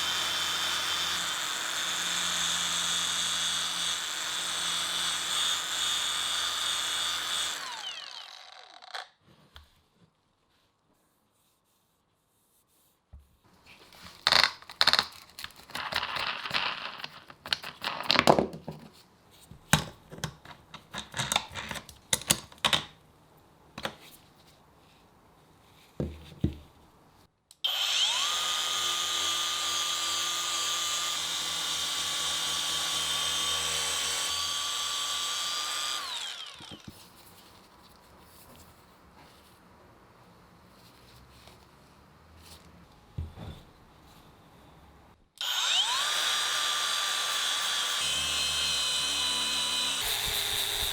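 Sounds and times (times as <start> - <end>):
electric power tool whining: 0.0 - 9.0, 27.6 - 37.0, 45.4 - 50.9.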